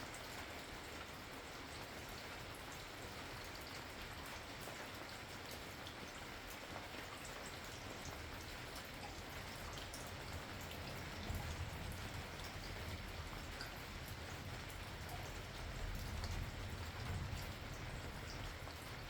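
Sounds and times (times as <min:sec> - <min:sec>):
raindrops ticking on a surface: 0:00.0 - 0:19.0
steady rain falling: 0:00.0 - 0:19.0.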